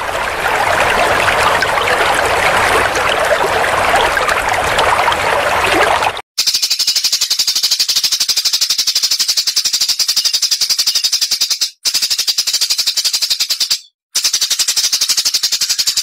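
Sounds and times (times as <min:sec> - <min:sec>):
songbird rapid-fire song: 0:06.4 - 0:16.0.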